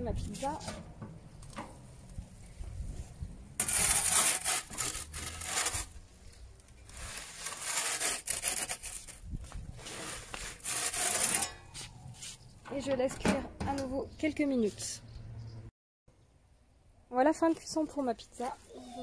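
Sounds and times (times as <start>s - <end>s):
metal peel scraping on stone: 3.6s - 5.9s, 9.9s - 11.9s.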